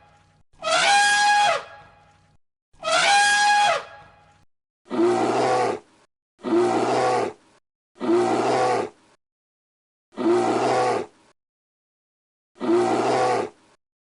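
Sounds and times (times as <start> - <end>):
brassy trumpet-like animal call: 0.6 - 1.9, 2.8 - 4.1
deep animal roar: 6.4 - 7.4, 8.0 - 9.0, 10.1 - 11.1, 12.6 - 13.6.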